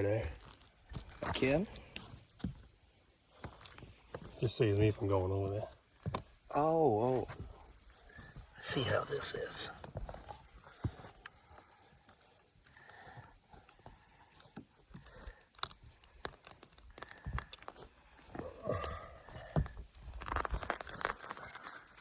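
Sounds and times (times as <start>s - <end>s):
footsteps on roof: 0.2s - 9.0s, 9.7s - 11.9s, 17.1s - 20.8s
rustling of roofing material: 0.3s - 22.0s
knocks and scuffs on roof: 6.0s - 8.5s, 9.8s - 11.2s.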